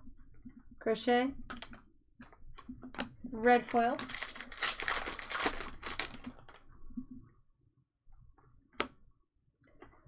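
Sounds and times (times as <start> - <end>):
card pack wrapper crinkling: 3.4 - 6.6.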